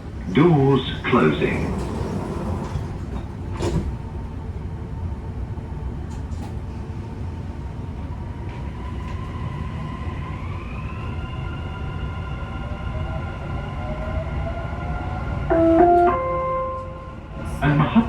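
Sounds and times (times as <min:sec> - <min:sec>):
train doors shutting knock: 0:00.8 - 0:04.2, 0:15.5 - 0:18.0.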